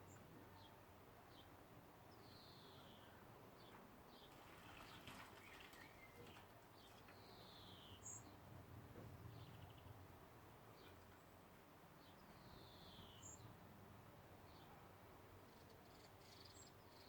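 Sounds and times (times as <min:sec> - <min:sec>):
songbird chirping: 0:00.0 - 0:08.4, 0:12.0 - 0:13.6, 0:15.4 - 0:17.0.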